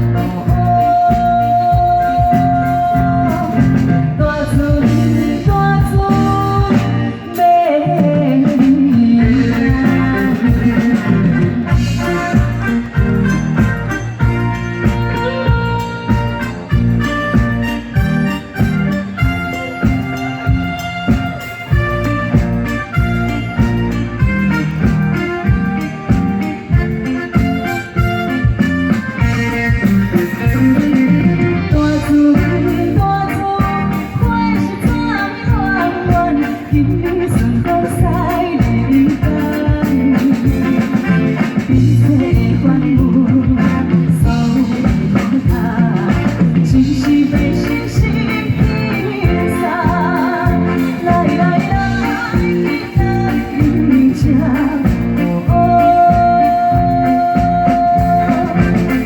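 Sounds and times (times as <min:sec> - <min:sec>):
live song with singer: 0:00.0 - 0:59.0.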